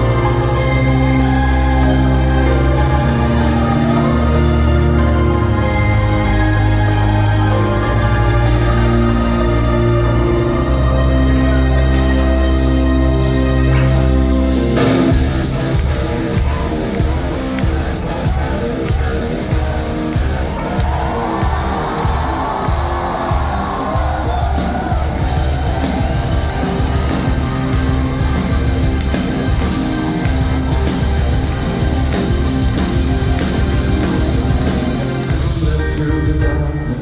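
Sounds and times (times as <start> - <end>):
live rock band playing: 12.6 - 37.0.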